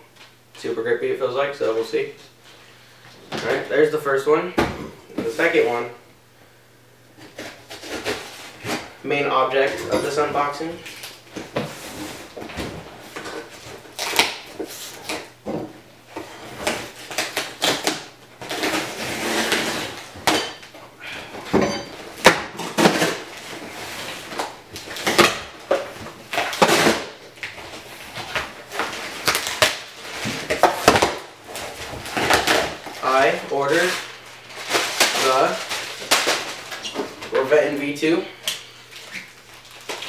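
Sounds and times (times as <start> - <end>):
packaging rustling and scraping: 7.2 - 9.0, 9.6 - 15.3, 16.1 - 37.5, 38.7 - 40.0.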